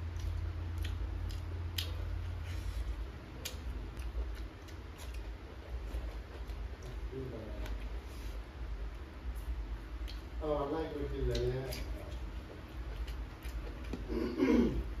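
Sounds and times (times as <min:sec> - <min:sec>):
person chewing food: 0:00.0 - 0:10.4, 0:11.2 - 0:15.0
wet mouth clicks: 0:00.1 - 0:02.3, 0:10.0 - 0:10.3.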